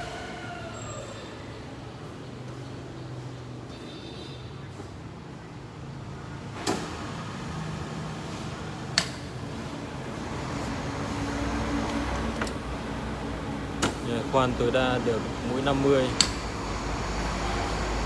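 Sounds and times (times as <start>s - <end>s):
drilling machine humming: 7.7s - 18.0s.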